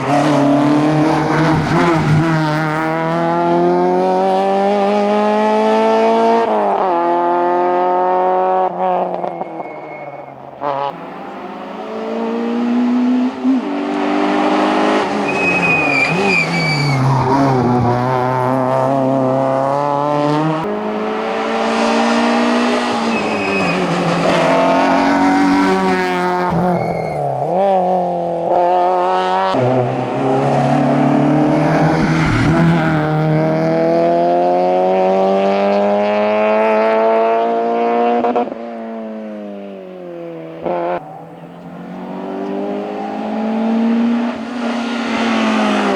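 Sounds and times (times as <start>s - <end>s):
car engines revving hard: 0.0s - 45.9s
tyre squeal: 8.7s - 10.9s, 15.0s - 18.0s, 22.6s - 27.4s.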